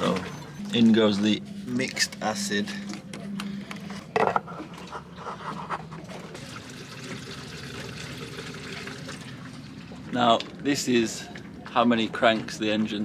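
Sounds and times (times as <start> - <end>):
liquid trickling pour: 6.3 - 10.1.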